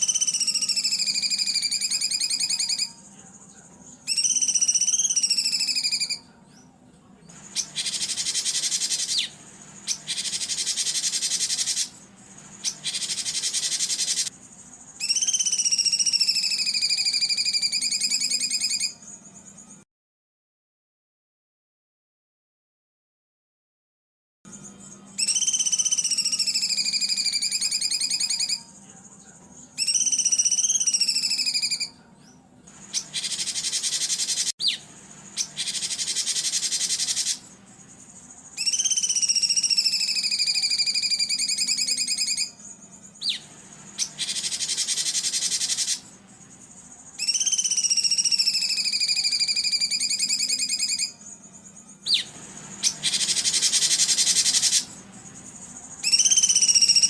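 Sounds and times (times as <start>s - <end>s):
trilled whistling bird calls: 0.0s - 6.7s, 7.3s - 19.8s, 24.5s - 57.0s
harsh buzzy bird calls: 0.0s - 19.8s, 24.5s - 57.0s.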